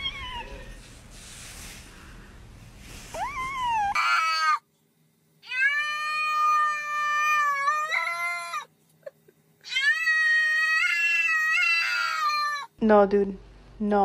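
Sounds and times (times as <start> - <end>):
cat meowing: 0.0 - 0.8.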